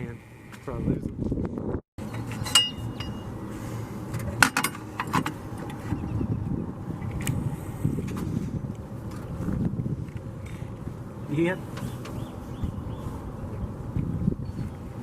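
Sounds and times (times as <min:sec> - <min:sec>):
low steady rumble: 0:00.0 - 0:15.0
metal tools clinking on engine parts: 0:02.0 - 0:03.4, 0:04.3 - 0:05.3.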